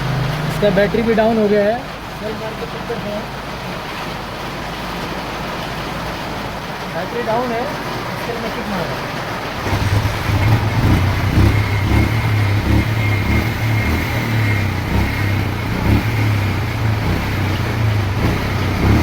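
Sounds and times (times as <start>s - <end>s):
motorcycle engine misfiring: 9.3s - 19.0s
engine kick start: 9.6s - 14.2s.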